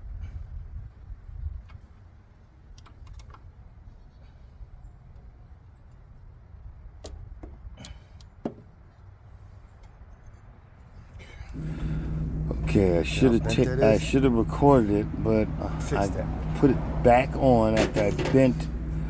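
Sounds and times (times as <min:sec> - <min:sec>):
low rumble: 0:11.6 - 0:19.0.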